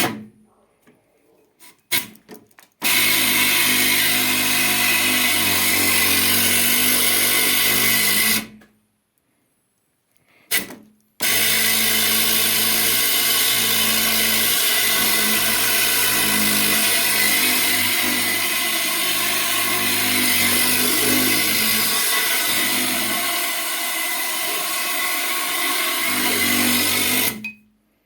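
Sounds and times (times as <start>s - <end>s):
electric angle grinder running: 11.2s - 27.4s.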